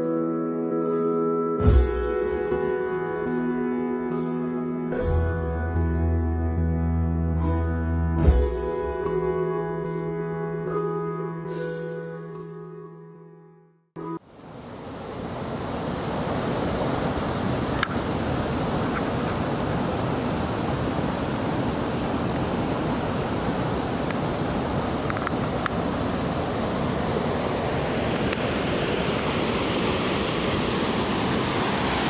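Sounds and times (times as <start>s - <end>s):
river rapids rushing: 14.4s - 32.0s.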